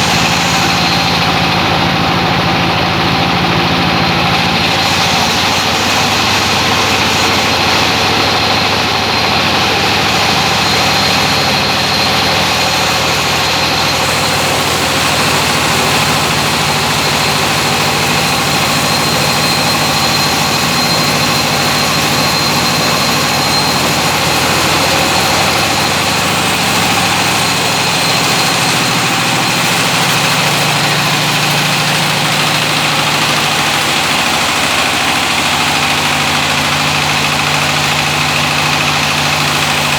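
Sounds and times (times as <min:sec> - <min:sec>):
diesel engine running loud: 0:00.0 - 0:39.9.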